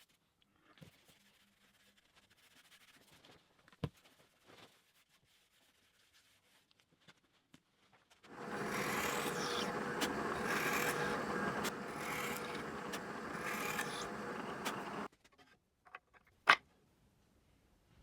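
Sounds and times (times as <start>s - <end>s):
scratchy rubbing on wood: 8.3s - 15.1s.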